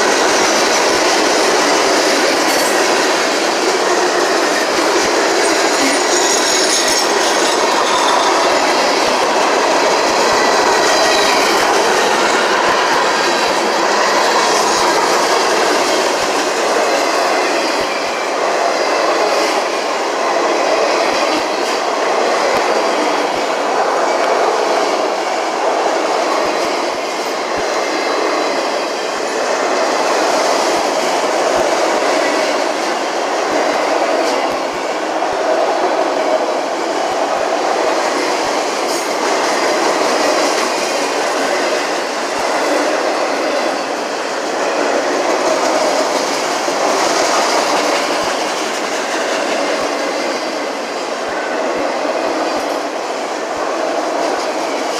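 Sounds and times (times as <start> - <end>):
train wheels rumbling on rails: 0.0 - 54.9.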